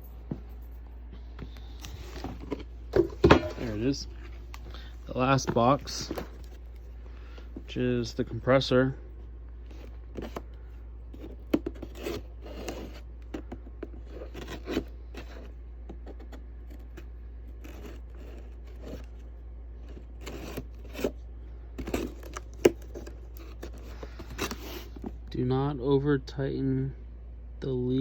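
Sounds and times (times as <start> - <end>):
cardboard box being handled: 1.7 - 6.8, 21.8 - 25.2.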